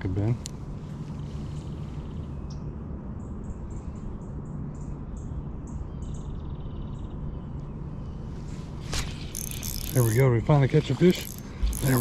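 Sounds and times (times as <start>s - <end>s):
low outdoor rumble: 0.0s - 12.0s
buzzing bird trill: 8.9s - 10.3s, 11.0s - 12.0s
small bird chirping: 9.0s - 10.2s, 11.1s - 12.0s.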